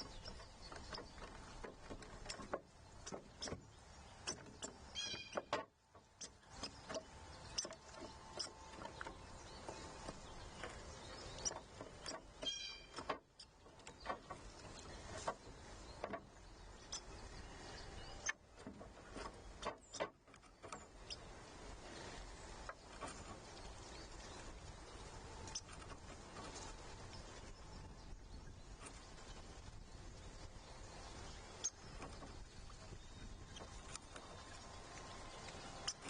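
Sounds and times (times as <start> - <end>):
birds pecking seed on feeder: 0.0 - 28.0, 30.6 - 36.0.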